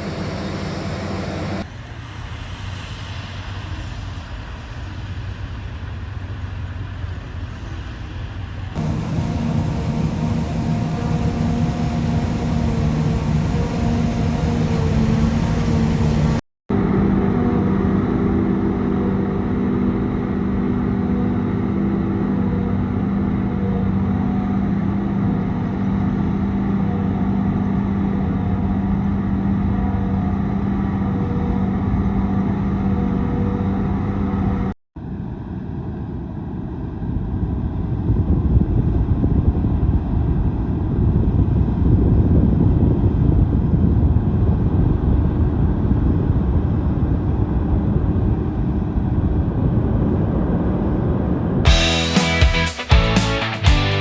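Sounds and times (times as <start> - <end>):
harvest machinery engines humming: 0.0 - 1.6, 8.8 - 34.6.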